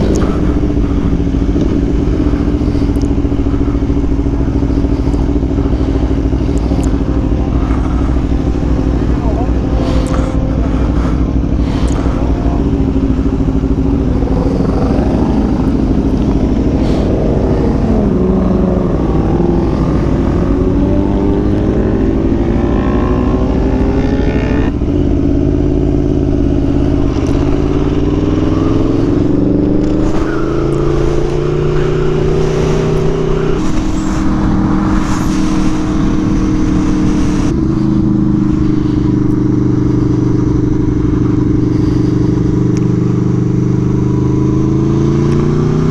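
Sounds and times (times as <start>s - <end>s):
motorcycle engine pulling hard: 0.0s - 45.9s
wind rush: 26.6s - 39.3s.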